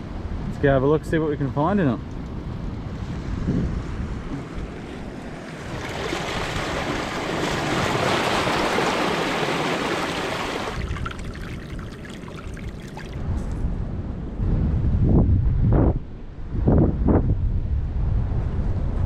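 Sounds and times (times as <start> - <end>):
wind rumble on microphone: 0.0 - 19.0
seawater washing over rocks: 4.6 - 13.2.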